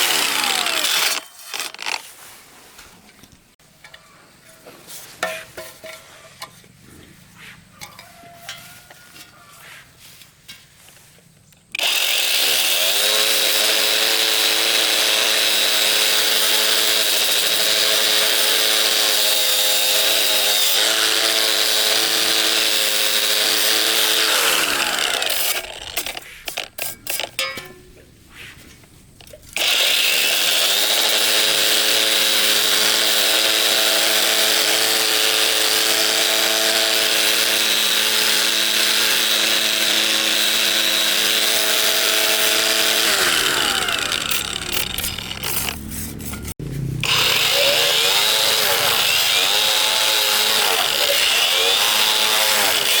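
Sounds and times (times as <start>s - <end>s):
electric power tool running: 0.0s - 2.0s, 11.8s - 26.2s, 29.6s - 45.8s, 47.0s - 53.0s.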